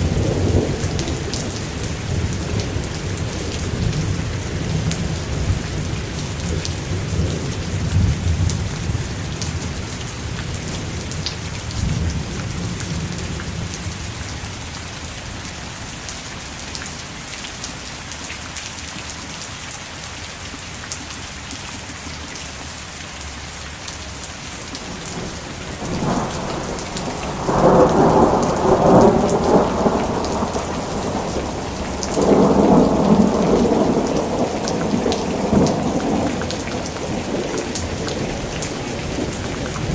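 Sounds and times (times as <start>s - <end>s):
steady rain: 0.0s - 39.9s
rolling thunder: 24.8s - 39.9s.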